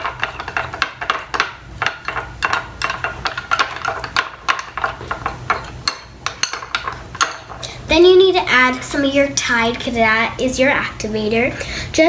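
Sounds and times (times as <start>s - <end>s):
spoon stirring glue in a bowl: 0.0s - 7.7s.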